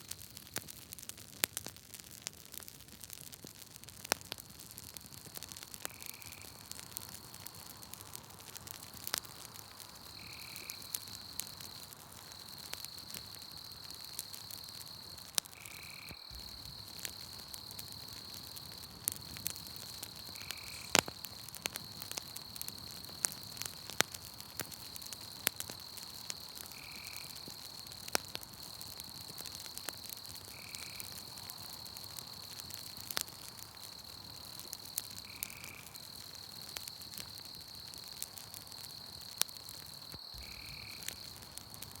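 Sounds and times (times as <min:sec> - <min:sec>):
campfire crackling and popping: 0:00.0 - 0:42.0
high insect trill: 0:10.0 - 0:23.8, 0:24.4 - 0:42.0.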